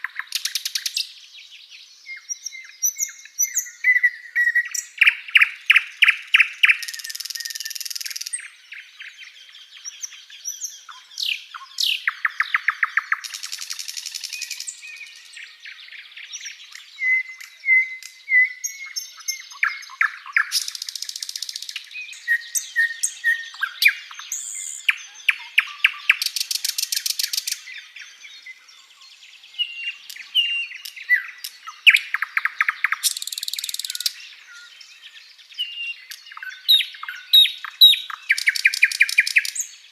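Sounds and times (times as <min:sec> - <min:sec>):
flycatcher singing: 0:00.0 - 0:39.9.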